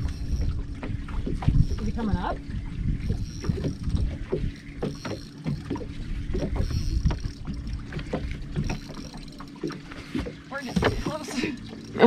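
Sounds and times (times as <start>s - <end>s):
wind rumbling on microphone: 0.0s - 5.0s.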